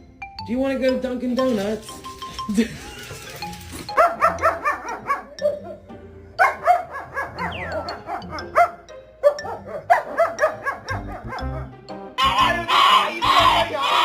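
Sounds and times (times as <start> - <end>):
background music: 0.0 - 14.0
dog yipping and barking: 3.9 - 5.8, 6.4 - 11.7.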